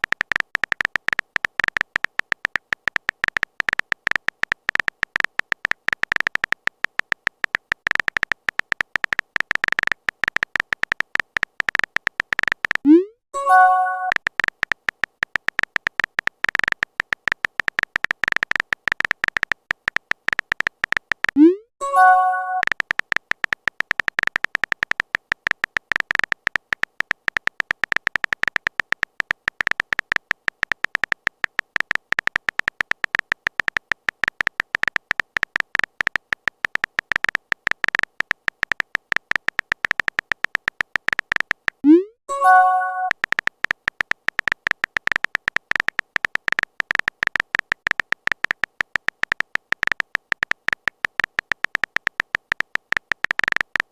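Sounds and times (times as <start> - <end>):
keyboard typing clicks: 0.0 - 53.9
message sent notification chime: 12.9 - 14.1, 21.4 - 22.6, 41.9 - 43.1.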